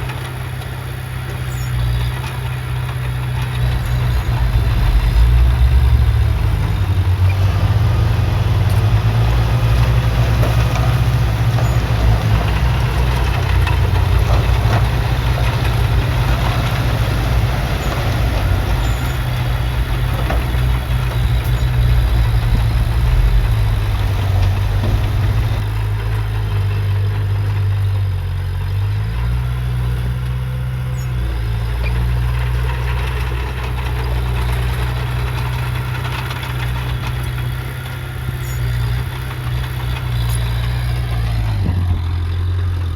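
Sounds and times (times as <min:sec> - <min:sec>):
heavy diesel engine under load: 0:00.0 - 0:42.9
metal clanks and rattles: 0:01.3 - 0:26.2.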